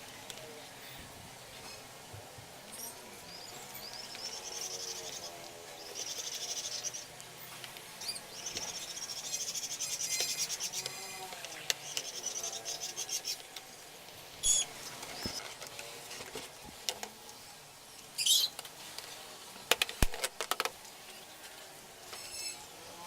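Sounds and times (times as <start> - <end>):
birds chirping: 2.7 - 7.2, 8.0 - 13.5, 14.4 - 15.5.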